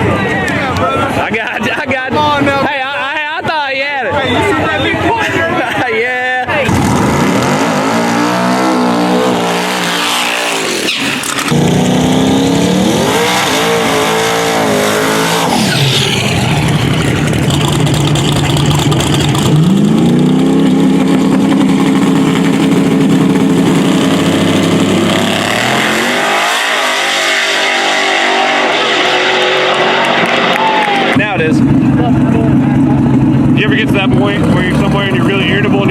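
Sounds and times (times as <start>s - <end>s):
race car engines revving: 0.0s - 35.9s.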